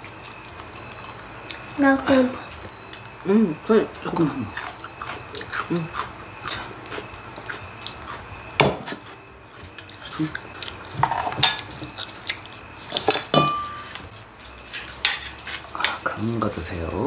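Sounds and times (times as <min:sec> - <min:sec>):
metal utensils clinking on bowls: 0:09.8 - 0:12.2, 0:12.8 - 0:17.0.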